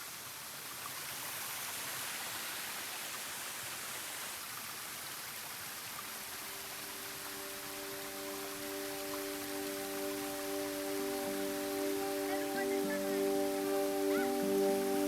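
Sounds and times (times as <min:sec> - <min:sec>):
waterfall rushing: 0:00.8 - 0:15.0
background music with held tones: 0:06.3 - 0:15.0.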